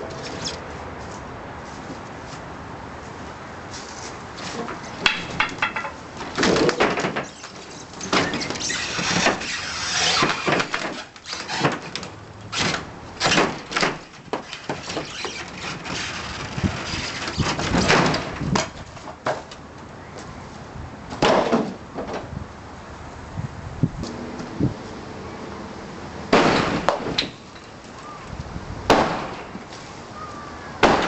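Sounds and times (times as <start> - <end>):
wood creaking and cracking: 4.4 - 19.6
sharp knocks and bangs: 5.0 - 7.3, 12.6 - 16.1, 17.4 - 19.5, 21.1 - 22.3, 26.3 - 27.7, 28.9 - 29.7, 30.8 - 31.0.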